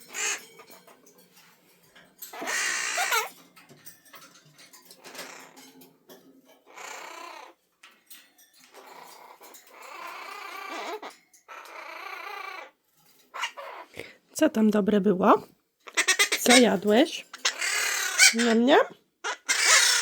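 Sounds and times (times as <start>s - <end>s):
macaw squawking and chattering: 0.0s - 0.5s, 2.3s - 3.3s, 6.7s - 7.5s, 8.8s - 12.7s, 13.4s - 13.9s, 15.9s - 20.0s.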